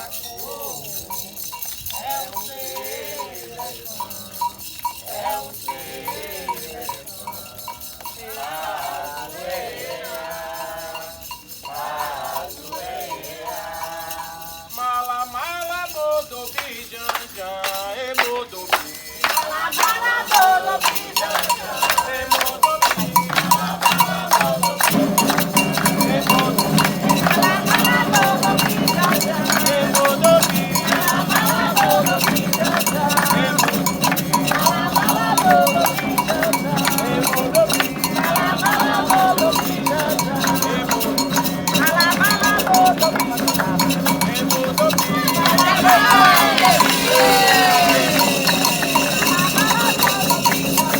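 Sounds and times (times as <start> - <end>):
metal bell struck in rhythm: 0.0 - 50.9
voices singing: 0.0 - 50.9
drums: 18.2 - 50.9.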